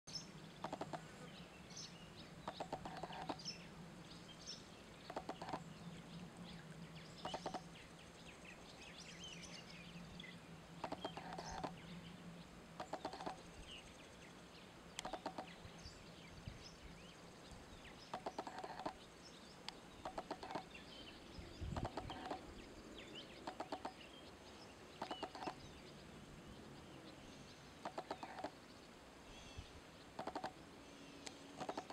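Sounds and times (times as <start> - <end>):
bird clucking rattles: 0.6 - 1.0, 2.5 - 3.4, 5.1 - 5.6, 7.2 - 7.6, 10.8 - 11.7, 12.8 - 13.4, 15.0 - 15.5, 18.0 - 19.0, 20.0 - 20.7, 21.7 - 22.4, 23.4 - 24.0, 25.0 - 25.6, 27.8 - 28.5, 30.2 - 30.5, 31.6 - 31.9.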